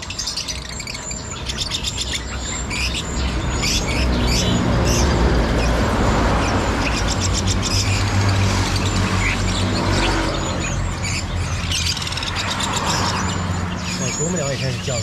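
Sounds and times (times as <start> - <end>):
caged songbirds chirping: 0.0 - 15.0.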